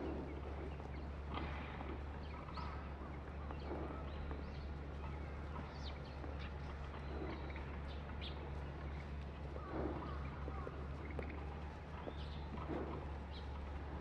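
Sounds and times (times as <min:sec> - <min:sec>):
flock of birds calling: 0:00.0 - 0:14.0
steady low hum: 0:00.0 - 0:14.0.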